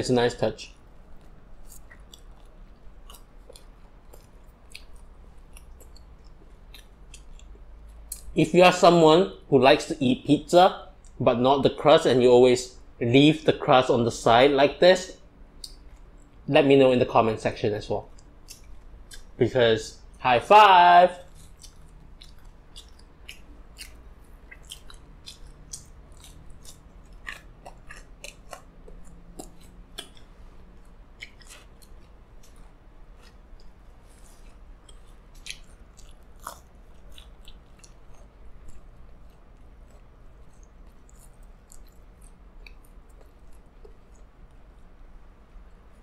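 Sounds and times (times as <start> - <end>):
person chewing crunchy food: 0.7 - 8.3, 18.1 - 19.4, 21.2 - 45.0.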